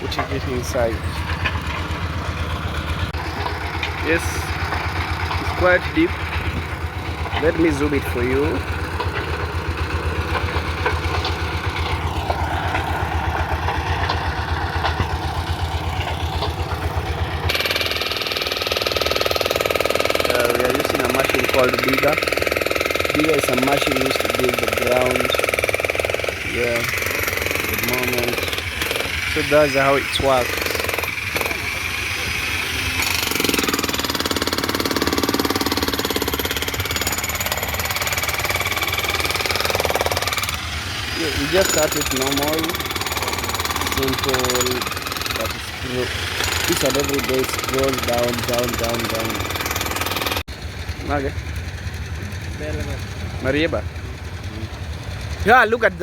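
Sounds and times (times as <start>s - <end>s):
engine running with even beat: 0.0s - 56.0s
machine with fast fine pulse: 10.2s - 50.4s.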